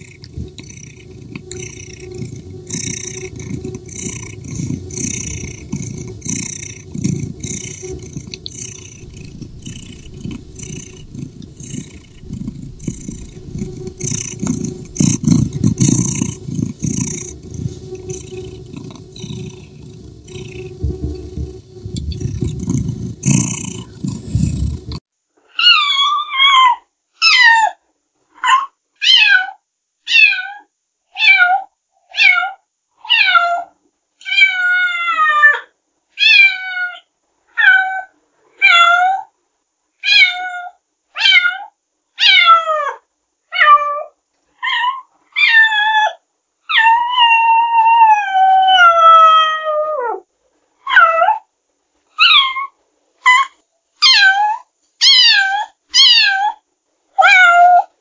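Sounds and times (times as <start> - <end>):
cat meowing: 54.0 - 56.6.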